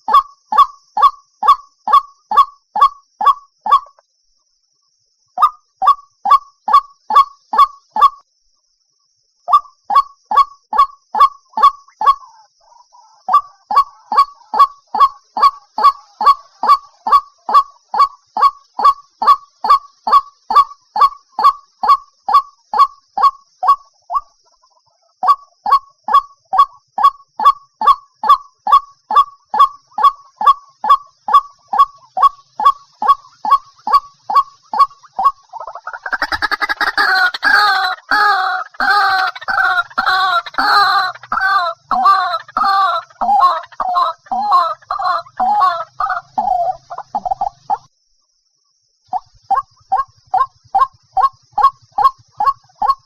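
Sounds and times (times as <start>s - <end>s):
waterhen calling: 9.5s - 26.7s, 27.4s - 47.9s, 49.1s - 53.0s
dense bird clamour: 29.5s - 47.8s.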